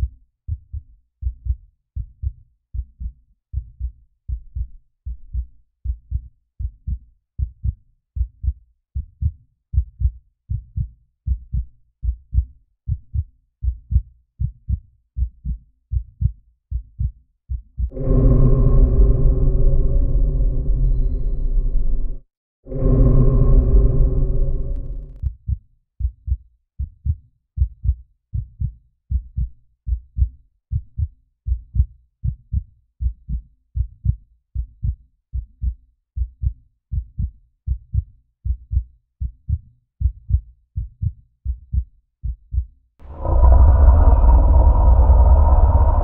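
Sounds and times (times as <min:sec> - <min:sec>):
heartbeat: 0:00.0 - 0:46.0
loud low rumble: 0:17.9 - 0:25.3, 0:43.0 - 0:46.0
steady hum: 0:43.0 - 0:46.0.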